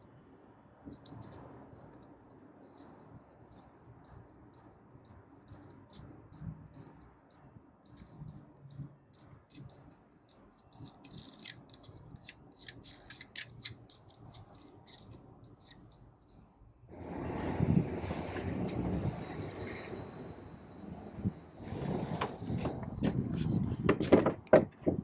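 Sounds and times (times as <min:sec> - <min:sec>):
hand tools clicking and snipping: 0:10.7 - 0:16.0.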